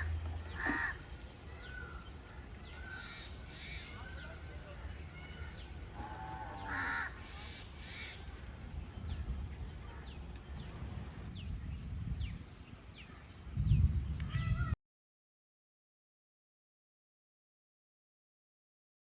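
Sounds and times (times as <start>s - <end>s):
crows cawing: 0.0s - 1.0s, 2.8s - 4.2s, 5.1s - 8.2s
birds chirping: 0.0s - 14.8s.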